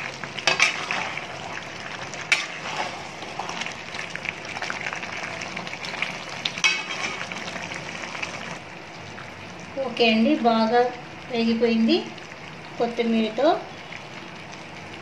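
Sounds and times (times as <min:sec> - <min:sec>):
curry frying in a pan: 0:00.0 - 0:15.0
metal spatula scraping a pan: 0:00.4 - 0:01.3, 0:02.2 - 0:03.7, 0:06.6 - 0:07.4.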